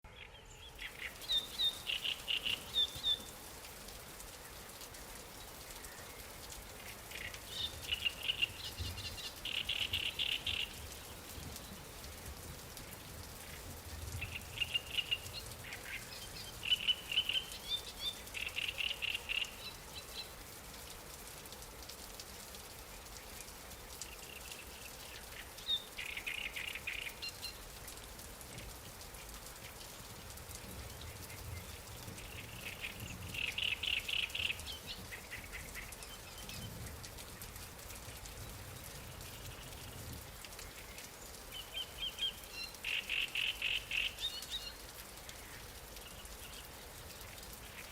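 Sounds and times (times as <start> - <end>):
light rain: 0.0 - 47.9
songbird singing trills: 0.1 - 3.4, 7.1 - 11.2, 14.2 - 20.3, 24.2 - 27.6, 31.4 - 36.7, 40.6 - 44.8.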